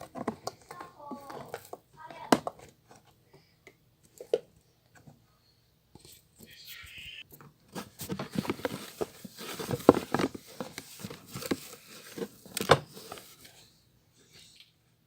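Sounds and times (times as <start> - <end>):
crinkling handling noise: 0.0 - 3.2, 7.3 - 13.8.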